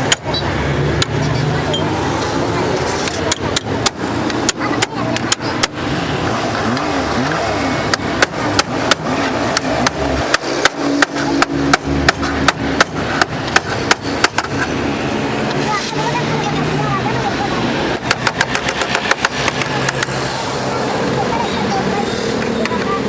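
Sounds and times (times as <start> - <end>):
hammer striking sheet metal: 7.8 - 14.7.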